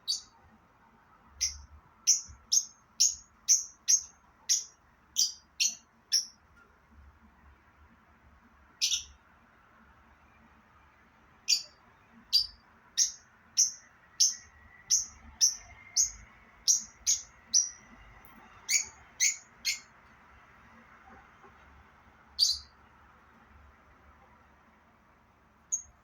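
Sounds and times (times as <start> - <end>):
parrot chirping: 0.0 - 0.4, 1.4 - 6.4, 8.8 - 9.2, 11.4 - 17.8, 18.6 - 19.9, 22.4 - 22.8, 25.7 - 26.0.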